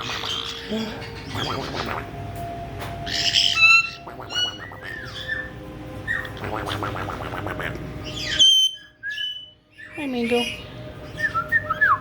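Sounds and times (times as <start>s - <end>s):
parrot squawk: 0.0s - 2.2s, 3.0s - 10.7s
parrot whistles: 3.0s - 6.4s, 8.0s - 10.0s.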